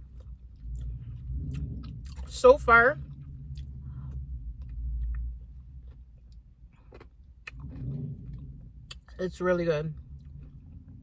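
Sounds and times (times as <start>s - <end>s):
low rumble: 0.0s - 11.0s
mouth clicks and chewing: 3.1s - 9.2s.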